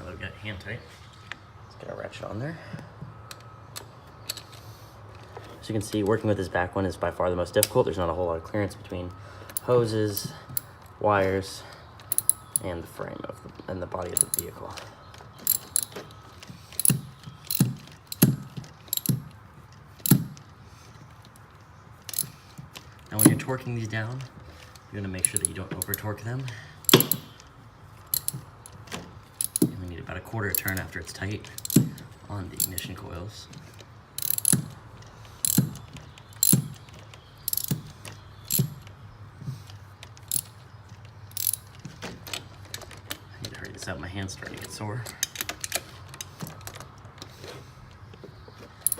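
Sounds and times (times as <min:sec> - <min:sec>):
hand ratchet clicking: 0:09.6 - 0:10.7, 0:12.1 - 0:12.7, 0:14.2 - 0:14.5, 0:15.5 - 0:16.0, 0:16.8 - 0:19.2, 0:20.1 - 0:20.4, 0:22.1 - 0:22.4, 0:23.2 - 0:23.5, 0:25.2 - 0:26.0, 0:26.9 - 0:27.3, 0:28.1 - 0:28.8, 0:29.4 - 0:29.8, 0:30.5 - 0:30.8, 0:31.6 - 0:32.0, 0:32.6 - 0:32.9, 0:34.2 - 0:34.8, 0:35.4 - 0:35.8, 0:36.4 - 0:36.8, 0:37.5 - 0:37.9, 0:38.5 - 0:38.8, 0:40.3 - 0:40.5, 0:41.3 - 0:41.7.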